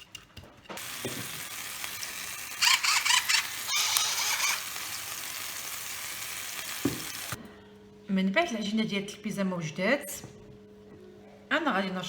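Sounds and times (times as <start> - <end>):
peppers sizzling in oil: 0.8 - 7.4.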